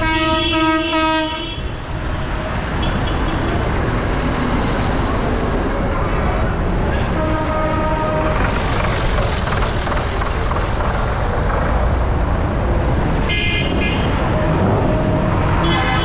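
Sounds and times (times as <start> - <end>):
tractor engines running: 8.1 - 13.3.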